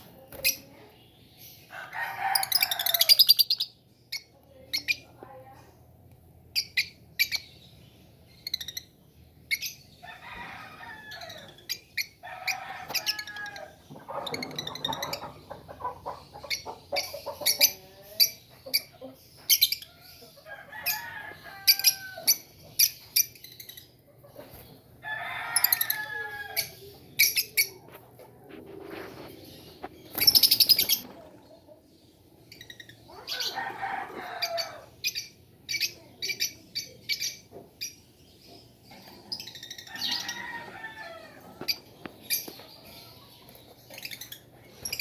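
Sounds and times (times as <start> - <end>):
birds chirping shrilly: 29.1 - 31.2, 38.8 - 45.0.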